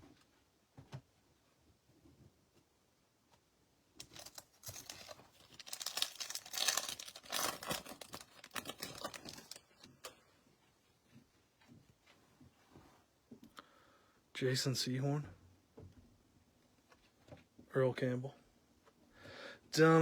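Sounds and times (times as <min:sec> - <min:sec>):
wrapper tearing and crinkling: 0:04.0 - 0:09.8.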